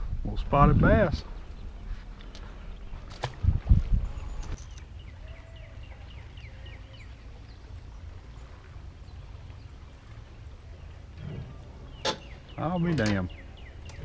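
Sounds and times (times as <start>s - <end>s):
bird singing falling notes: 10.8s - 14.0s.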